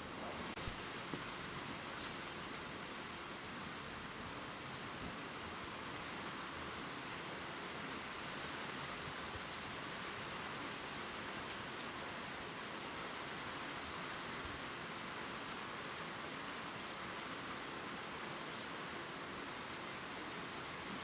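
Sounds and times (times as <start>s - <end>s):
rain falling on leaves: 0.0s - 21.0s.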